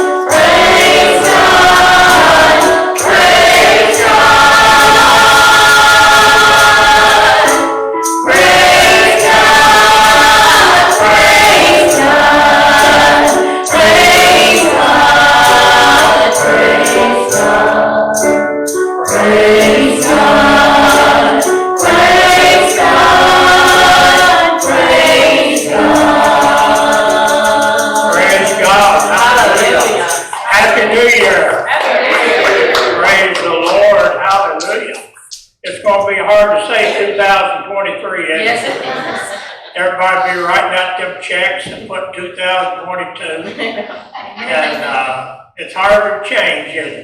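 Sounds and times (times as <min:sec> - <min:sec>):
tambourine: 0:00.0 - 0:31.4
instrumental accompaniment: 0:00.0 - 0:37.3
choir singing gospel: 0:00.0 - 0:41.8, 0:43.3 - 0:47.0.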